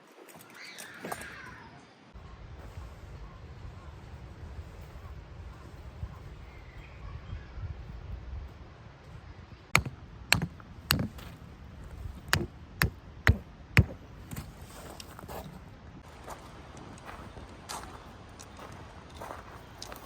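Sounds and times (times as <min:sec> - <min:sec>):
sharp knocks: 0:09.7 - 0:11.3, 0:12.2 - 0:14.5.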